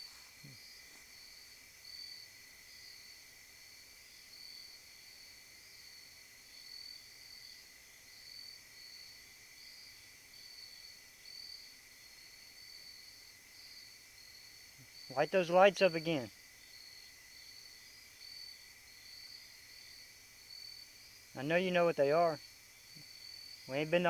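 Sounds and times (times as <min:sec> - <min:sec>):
night insects trilling: 0:00.0 - 0:24.0.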